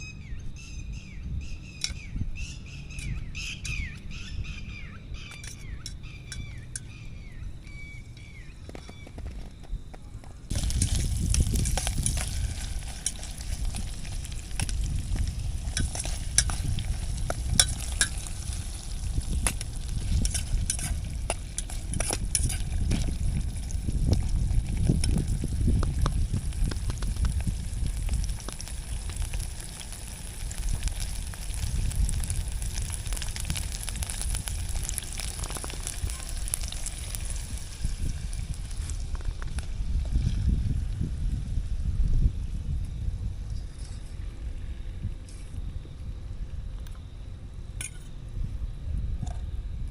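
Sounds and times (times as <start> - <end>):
wind rumbling on microphone: 0.0 - 49.9
food sizzling in hot oil: 10.5 - 41.6.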